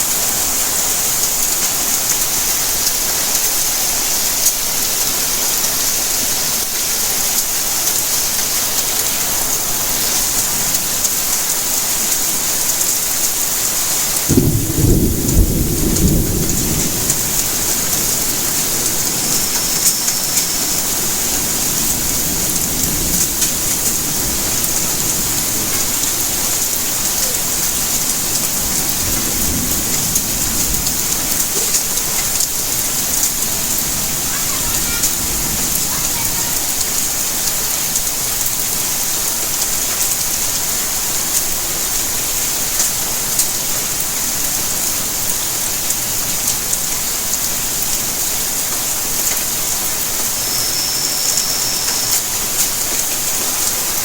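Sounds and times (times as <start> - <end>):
steady rainfall: 0.0 - 54.0
thunder rumble: 14.3 - 37.6.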